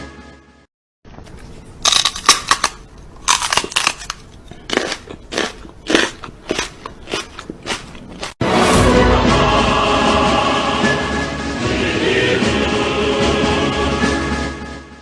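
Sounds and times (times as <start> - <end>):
crackly crunching: 1.2 - 8.4.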